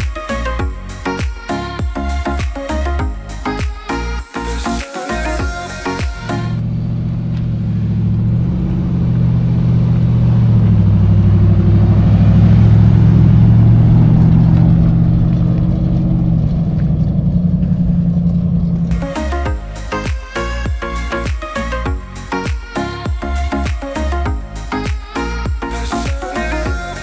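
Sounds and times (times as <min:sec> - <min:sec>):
vehicle engine running: 0:05.3 - 0:27.0.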